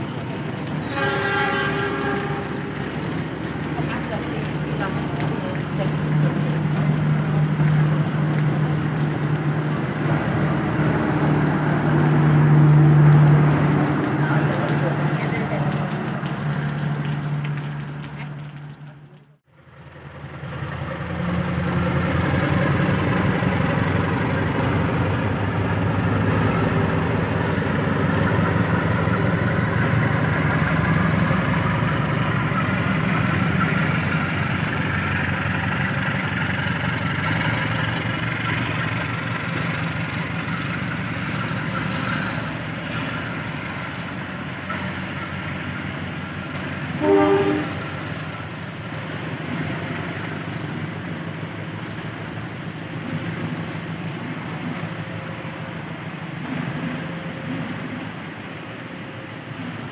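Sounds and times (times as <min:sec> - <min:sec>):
train rumble and wheel clatter: 0:00.0 - 0:59.9
train horn blast: 0:00.8 - 0:03.1, 0:46.9 - 0:48.0.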